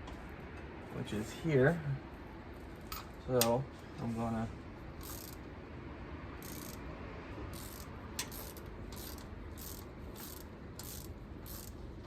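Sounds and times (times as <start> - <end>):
ratchet wrench clicking: 5.0 - 5.5, 6.4 - 6.9, 7.5 - 11.8.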